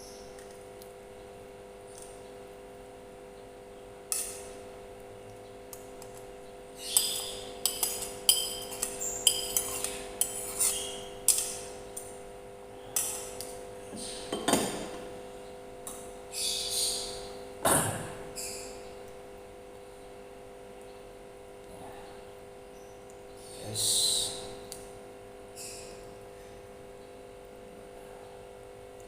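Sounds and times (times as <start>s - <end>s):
steady low hum: 0.0s - 29.0s
spoon clinking on a plate: 7.0s - 11.6s.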